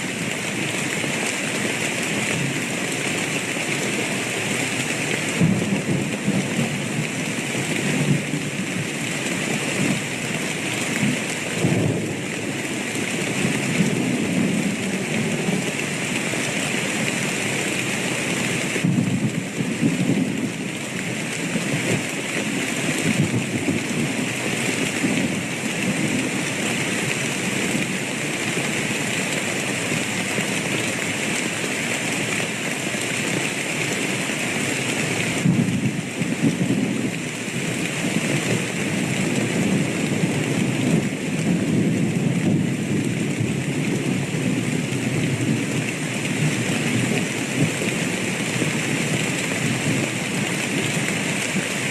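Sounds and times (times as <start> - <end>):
heavy rain: 0.0 - 51.9
low rolling thunder: 18.8 - 20.5.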